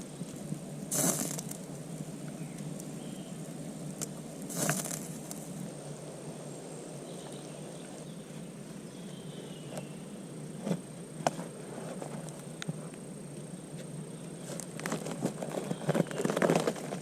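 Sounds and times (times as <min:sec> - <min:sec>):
fire crackles and pops: 0:00.0 - 0:05.8, 0:14.2 - 0:17.0
campfire burning: 0:00.0 - 0:09.2.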